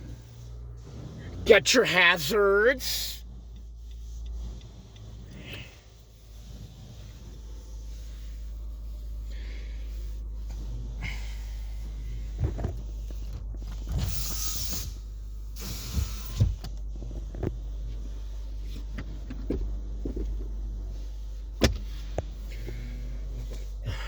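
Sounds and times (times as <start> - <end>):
steady low hum: 0.0 - 24.0
car control clicks and knocks: 21.6 - 22.4.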